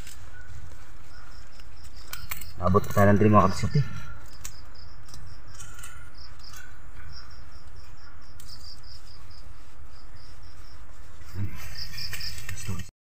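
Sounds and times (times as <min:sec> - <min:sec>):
crickets chirping: 0:00.0 - 0:12.9.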